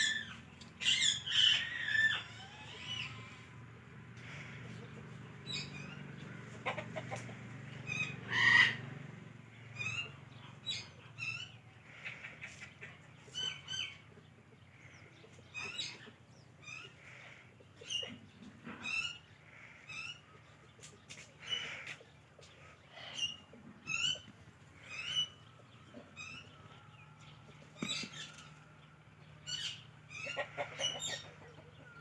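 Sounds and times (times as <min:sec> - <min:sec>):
parrot chirping and squawking: 0:00.0 - 0:03.4, 0:07.9 - 0:08.8, 0:22.9 - 0:25.4, 0:29.5 - 0:31.3.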